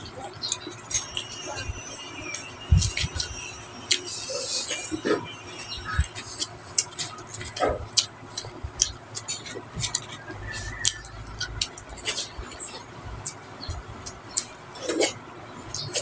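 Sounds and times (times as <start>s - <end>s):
chewing and mouth smacks: 6.0s - 15.2s.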